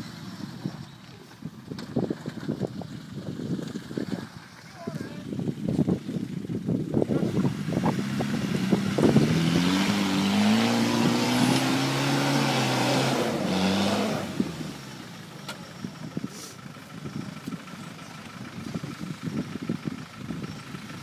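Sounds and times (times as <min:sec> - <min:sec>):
car engine revving hard: 0:07.2 - 0:15.2.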